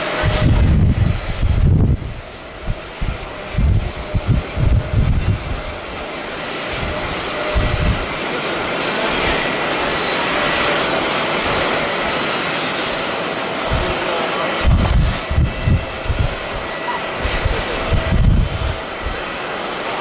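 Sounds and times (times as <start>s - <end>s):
wind buffeting microphone: 0.0s - 8.2s, 13.6s - 19.4s
jet airliner passing: 0.0s - 20.0s.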